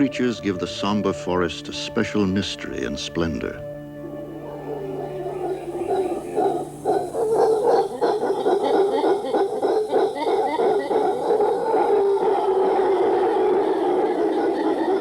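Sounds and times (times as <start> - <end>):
hooting animal calls: 4.0 - 15.0.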